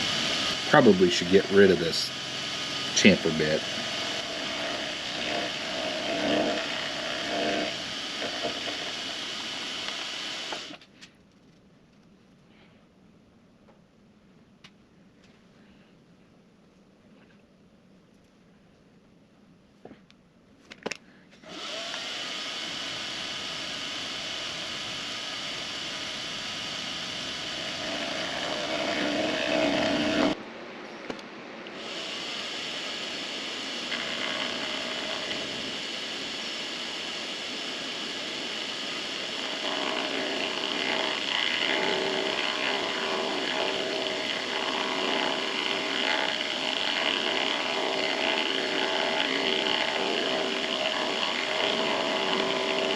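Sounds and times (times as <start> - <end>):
electric motor whining: 0.0 - 10.8, 21.4 - 30.4, 31.7 - 52.9
machine tool cutting metal: 0.0 - 10.8, 21.5 - 30.4, 31.8 - 52.9.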